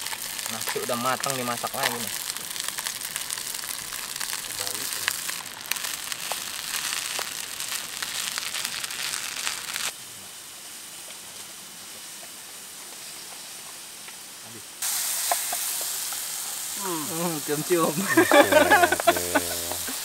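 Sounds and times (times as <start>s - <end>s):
food sizzling in a pan: 0.0s - 20.0s.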